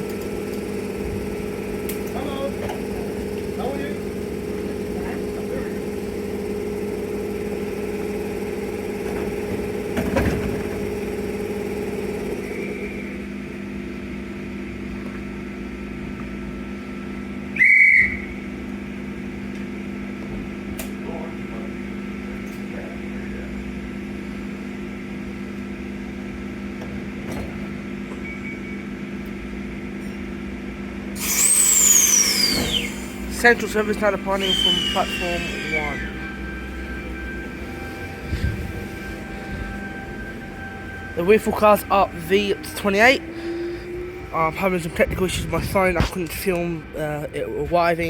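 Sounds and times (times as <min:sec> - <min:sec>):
electric train humming: 0:00.0 - 0:48.0
shrill whistle blast: 0:17.5 - 0:18.5, 0:31.2 - 0:44.6
sharp falling tone: 0:31.3 - 0:43.2.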